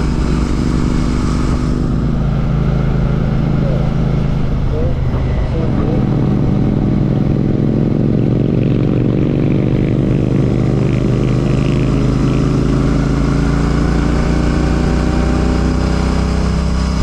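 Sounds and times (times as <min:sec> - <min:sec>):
wind noise: 0:00.0 - 0:11.2
motorcycle engine running: 0:00.0 - 0:17.0
road noise: 0:00.0 - 0:17.0.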